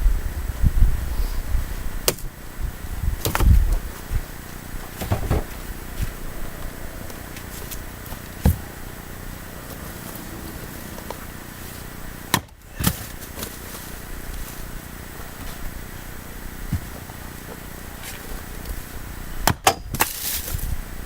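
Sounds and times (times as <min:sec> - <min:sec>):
axe striking wood: 0:02.0 - 0:02.3, 0:12.3 - 0:13.5, 0:19.4 - 0:20.2.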